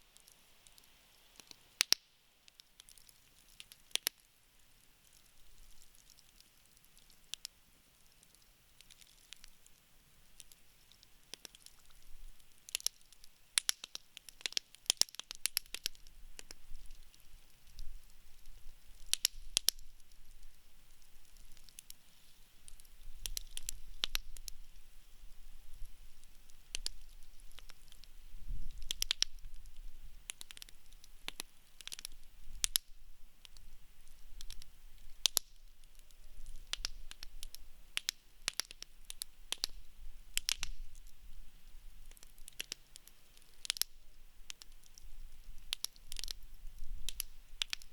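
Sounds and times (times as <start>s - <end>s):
campfire crackling and popping: 0.1s - 47.9s.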